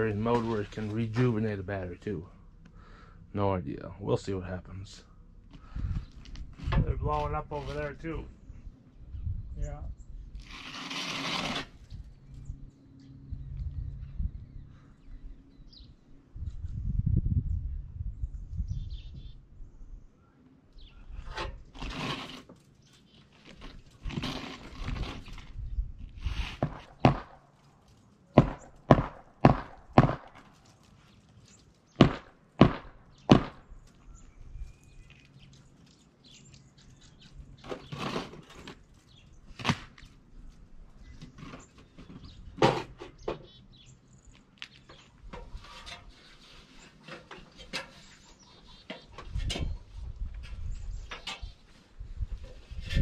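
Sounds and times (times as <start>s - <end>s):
sharp knocks and thuds: 26.6s - 27.4s, 28.4s - 30.5s, 32.0s - 33.6s.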